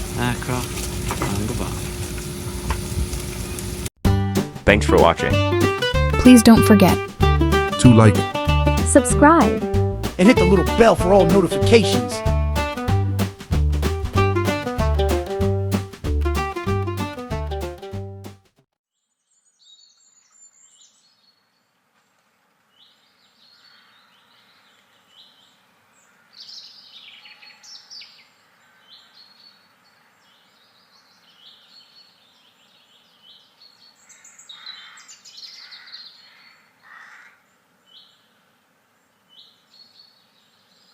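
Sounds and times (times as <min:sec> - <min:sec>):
small birds chirping: 0:22.7 - 0:37.1.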